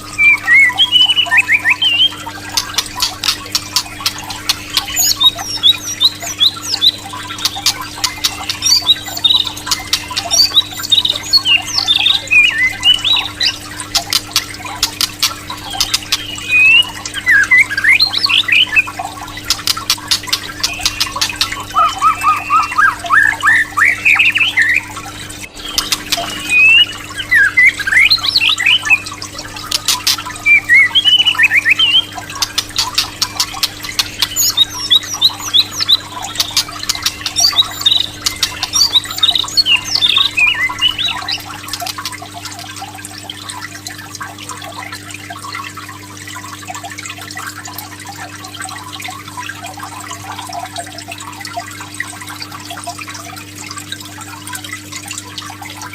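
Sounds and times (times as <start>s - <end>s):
bird whistling song: 0.0s - 13.7s, 15.6s - 19.0s, 19.6s - 42.1s
trickling water: 0.0s - 55.9s
faint bird chirps: 0.2s - 13.6s, 20.3s - 24.9s, 25.6s - 42.1s
bird clicking chatter: 0.2s - 24.7s, 25.6s - 42.2s.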